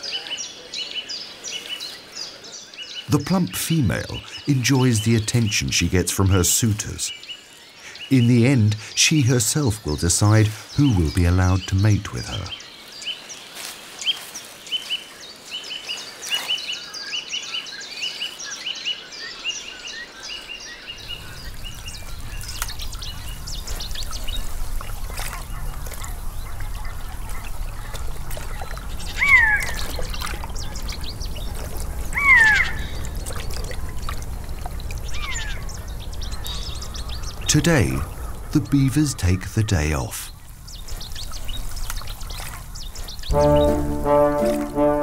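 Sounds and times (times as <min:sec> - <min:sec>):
loud falling bird calls: 0:20.0 - 0:34.1, 0:35.0 - 0:45.0.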